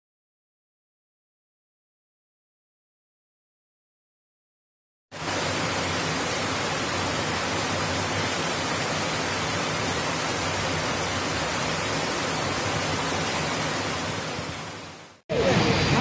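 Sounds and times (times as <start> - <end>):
heavy rain pouring: 5.1 - 16.0.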